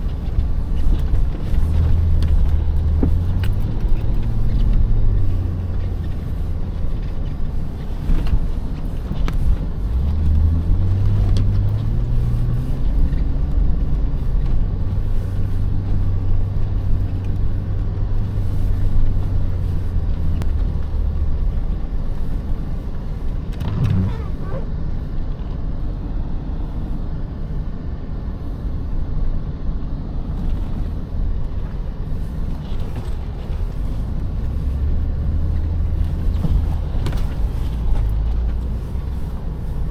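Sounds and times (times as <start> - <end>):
truck engine revving: 9.9 - 14.3.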